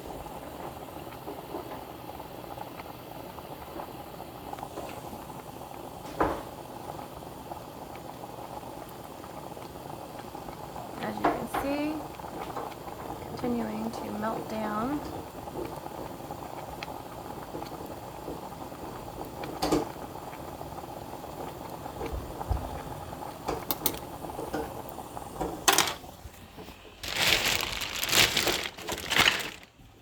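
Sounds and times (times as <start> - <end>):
melting wax simmering hiss: 0.0 - 30.0
handling noise: 25.4 - 30.0.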